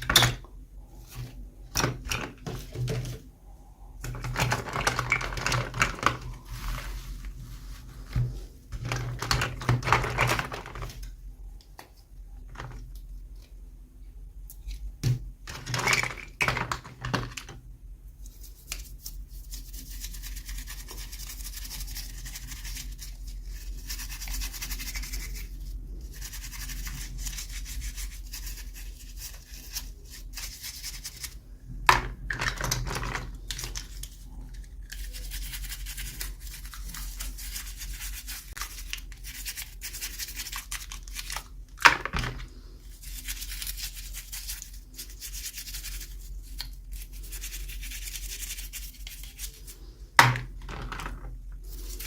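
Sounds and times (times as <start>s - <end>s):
hands rustling toy packaging: 4.1s - 11.1s, 32.0s - 49.8s.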